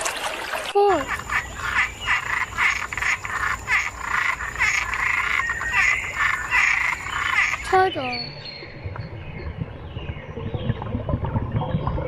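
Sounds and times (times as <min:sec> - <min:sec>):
frogs croaking: 0:00.8 - 0:08.3.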